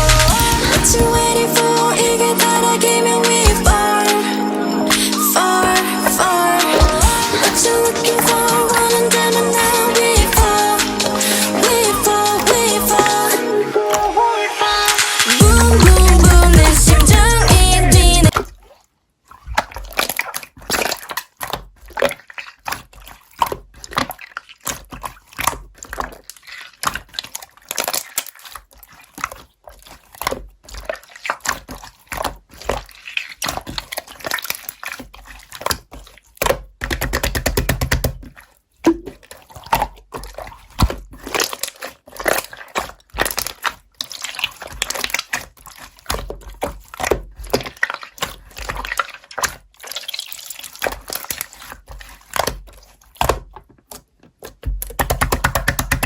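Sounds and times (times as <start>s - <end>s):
slime squishing with sticky pops: 18.3s - 56.0s.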